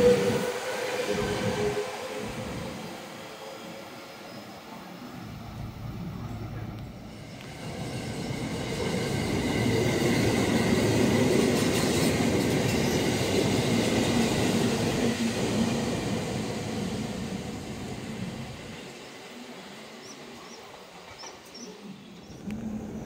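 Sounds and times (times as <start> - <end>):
train wheels rumbling on rails: 5.2 - 23.0.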